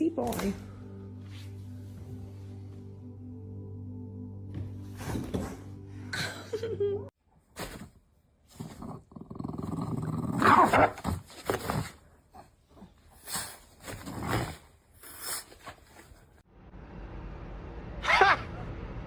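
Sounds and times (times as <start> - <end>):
dog growling: 8.6 - 11.0.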